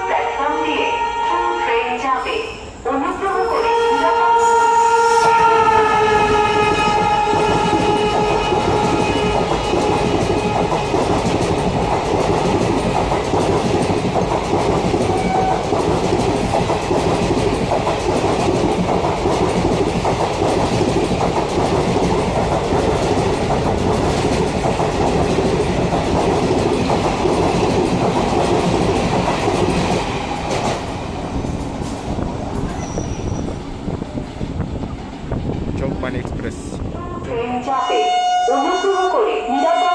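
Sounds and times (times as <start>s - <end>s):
train horn blast: 0.0s - 2.0s, 3.3s - 11.0s, 15.1s - 15.6s, 37.7s - 39.9s
train wheels clattering over rails: 6.1s - 36.4s.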